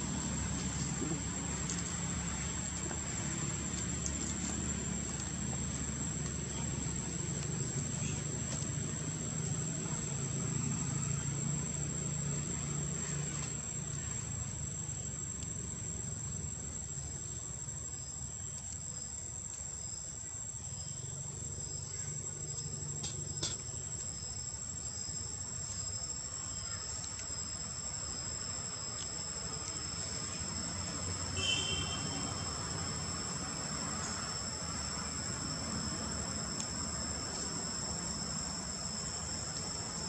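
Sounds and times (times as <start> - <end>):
insects trilling: 0.0 - 40.0
wavering insect trill: 20.7 - 40.0.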